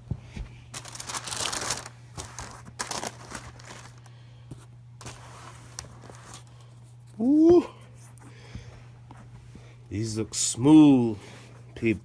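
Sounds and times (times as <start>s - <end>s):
packaging rustling and crinkling: 0.7s - 4.1s.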